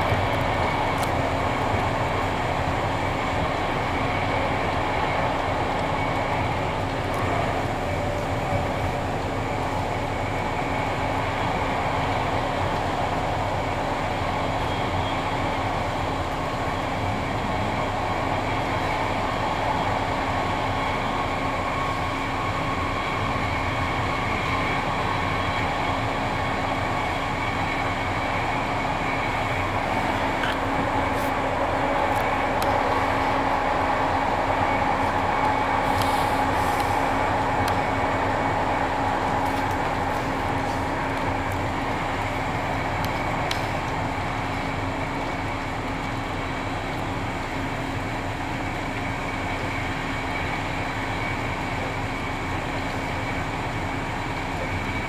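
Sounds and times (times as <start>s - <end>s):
train rolling noise: 0.0s - 55.0s.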